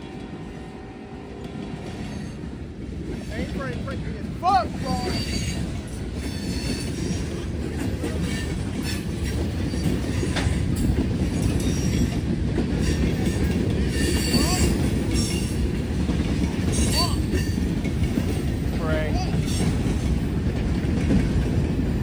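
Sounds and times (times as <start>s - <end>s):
wheels clicking over rail joints: 1.4s - 22.0s
high wheel squeal: 4.8s - 7.3s, 12.8s - 15.6s.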